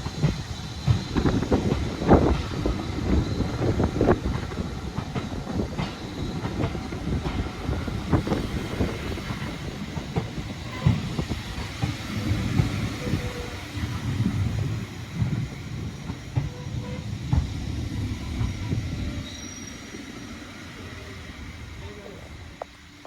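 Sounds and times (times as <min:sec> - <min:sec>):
wheels clanking over rail joints: 0:00.0 - 0:19.7
steam train rumbling: 0:00.0 - 0:23.0.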